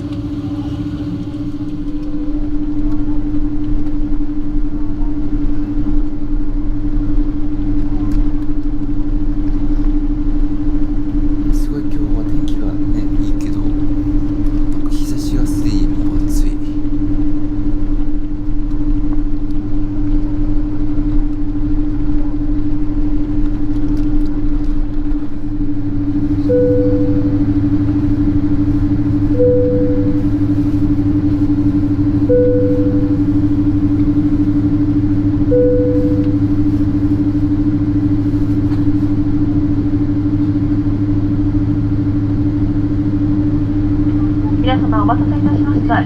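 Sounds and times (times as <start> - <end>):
airliner cabin hum: 0.0 - 46.0
steady drone tone: 0.0 - 46.0.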